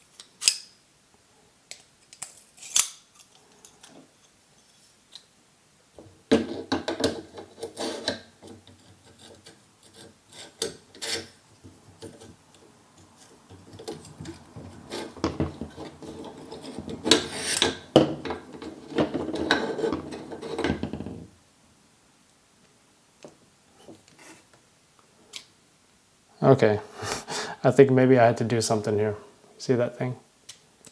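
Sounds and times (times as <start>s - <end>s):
metal parts scraping and clicking: 1.7s - 5.2s, 13.2s - 20.8s.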